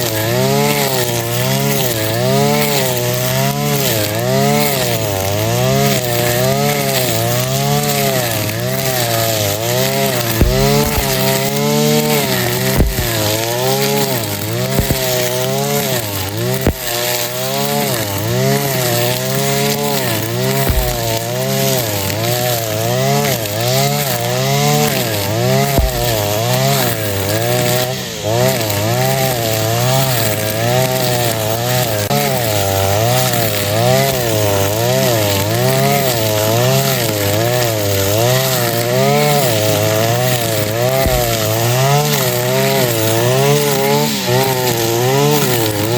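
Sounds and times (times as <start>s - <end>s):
brush cutter engine cutting grass: 0.0s - 45.9s
short low thumps: 10.4s - 11.4s, 12.8s - 13.2s, 20.7s - 21.2s, 25.8s - 26.3s.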